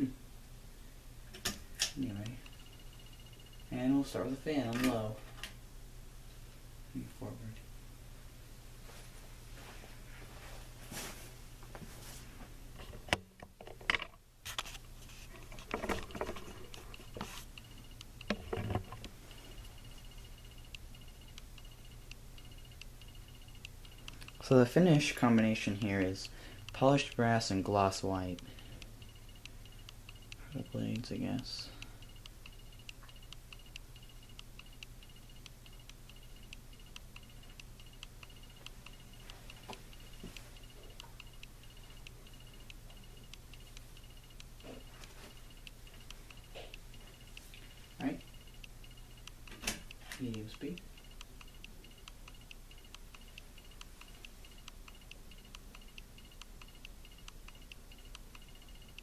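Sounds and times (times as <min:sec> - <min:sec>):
ceiling fan humming: 0:00.0 - 0:59.0
faint high ticking tone: 0:02.0 - 0:04.8, 0:17.5 - 0:59.0.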